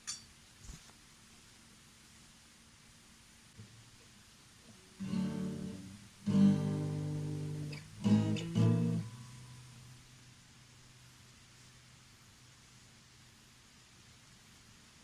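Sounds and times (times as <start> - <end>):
acoustic guitar chords strummed: 5.0 - 9.9.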